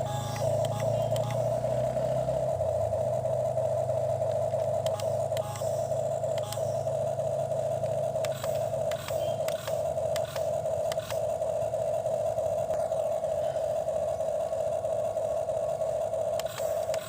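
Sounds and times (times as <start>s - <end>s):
sharp clicks and clatters: 0.0s - 1.8s, 3.4s - 13.3s, 15.7s - 17.0s
toy electric motor whining: 0.0s - 17.0s.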